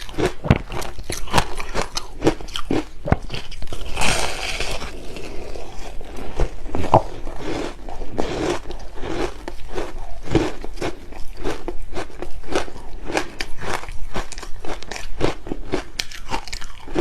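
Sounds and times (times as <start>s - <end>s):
ice crunching: 0.0s - 11.7s
chewing: 0.0s - 17.0s.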